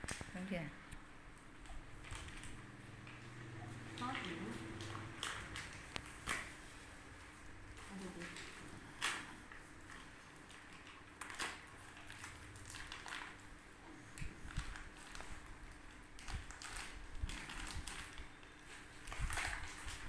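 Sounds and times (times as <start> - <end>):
faint rustling and handling: 1.4 - 20.0.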